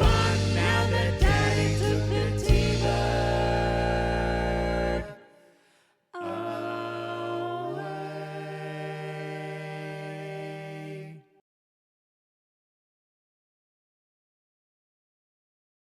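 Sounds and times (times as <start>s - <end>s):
band playing sustained chords: 0.0s - 5.0s.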